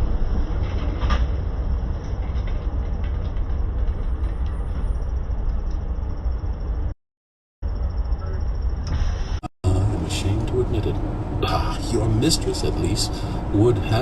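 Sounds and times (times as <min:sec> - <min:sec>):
car rumbling on road: 0:09.6 - 0:14.0.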